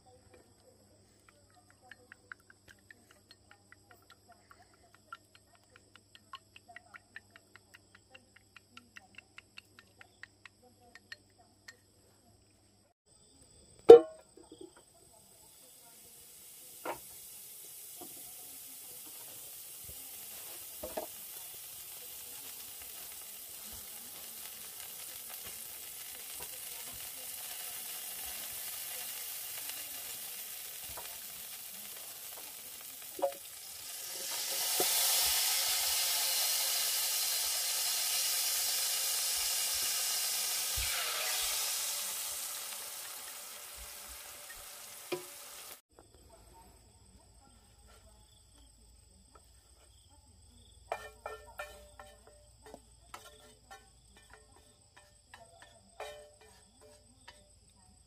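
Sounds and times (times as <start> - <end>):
food sizzling in a pan: 14.5 - 45.9, 50.5 - 58.0.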